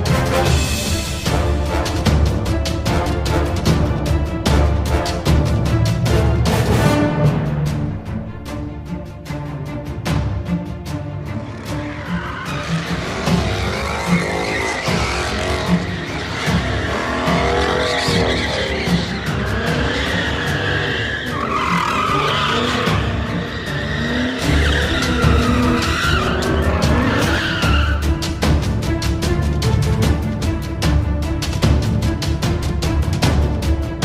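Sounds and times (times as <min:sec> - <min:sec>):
background music with steady beat: 0:00.0 - 0:34.0
vehicle noise: 0:10.6 - 0:29.3
tyres squealing: 0:11.4 - 0:28.4.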